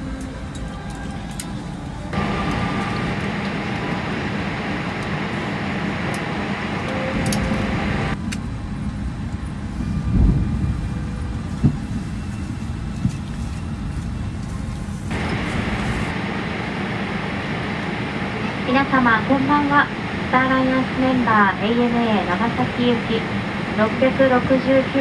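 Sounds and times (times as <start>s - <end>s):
loud steady rush with hum: 0.0s - 25.0s.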